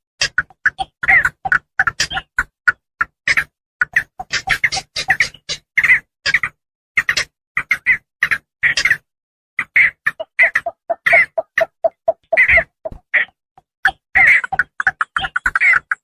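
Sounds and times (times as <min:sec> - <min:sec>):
herons calling: 0:03.8 - 0:06.0, 0:09.6 - 0:16.0.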